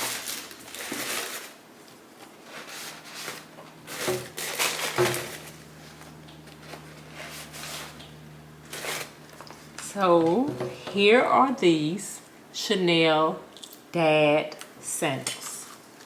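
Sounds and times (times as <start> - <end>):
packaging rustling: 0.0 - 9.9.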